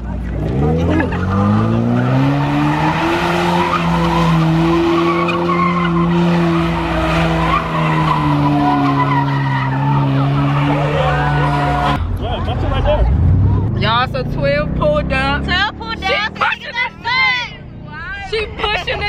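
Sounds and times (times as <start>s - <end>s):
car engine revving: 0.0s - 19.0s
tyres squealing: 0.6s - 12.0s.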